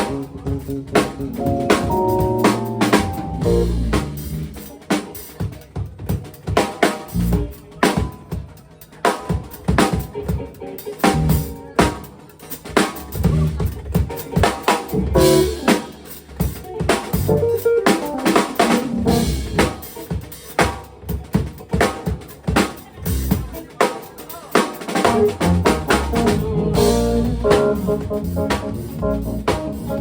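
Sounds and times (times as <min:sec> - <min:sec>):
live band instrumental groove: 0:00.0 - 0:30.0.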